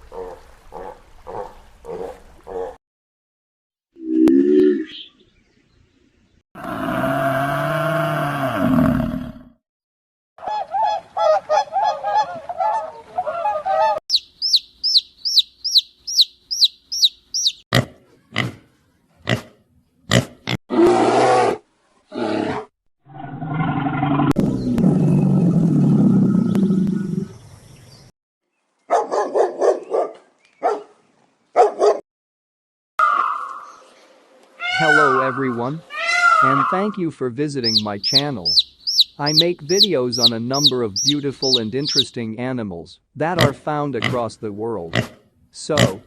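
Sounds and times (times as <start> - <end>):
quick high chirps: 14.1 - 17.6, 37.6 - 42.1
warbling animal calls: 34.6 - 37.0, 37.6 - 42.1
long low rasping call: 37.6 - 42.0.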